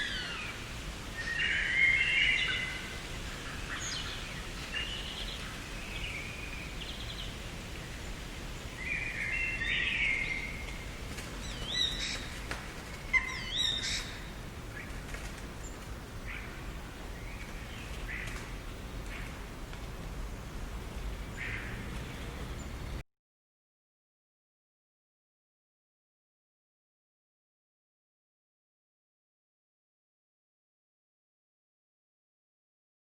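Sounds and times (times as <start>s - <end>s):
garden birds singing: 0.0s - 23.0s
steady background hiss: 0.0s - 23.0s.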